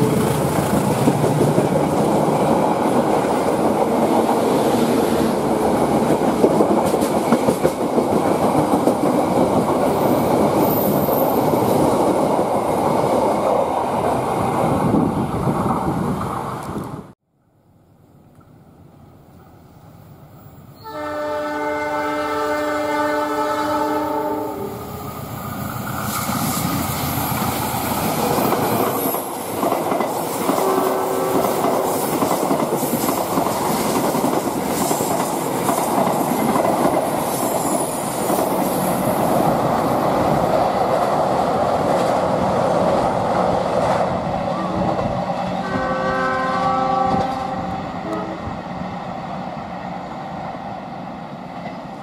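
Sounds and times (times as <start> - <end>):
wheels clacking over rail joints: 0.0 - 13.6, 26.0 - 45.6
passenger train rumble: 0.0 - 17.2, 18.1 - 52.0
train horn: 20.8 - 25.0, 30.6 - 31.6, 45.6 - 48.6.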